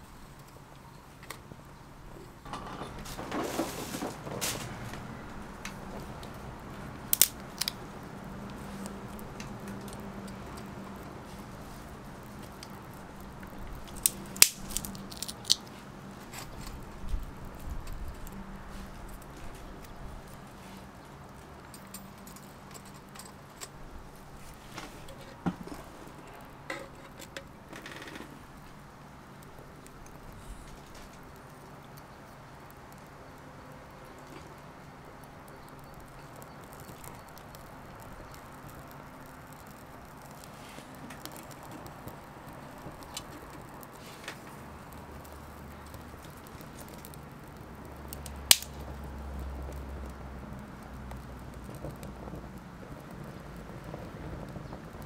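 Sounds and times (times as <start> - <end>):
wood fire crackling: 0.0 - 55.0
sharp fire snap: 3.0 - 55.0
small clicks and knocks: 7.0 - 18.4, 21.1 - 23.8, 24.7 - 28.8, 33.8 - 55.0.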